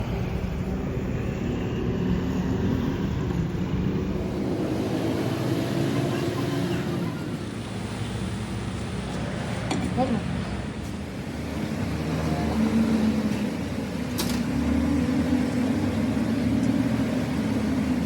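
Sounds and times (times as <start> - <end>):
heavy machinery droning: 0.0 - 18.0.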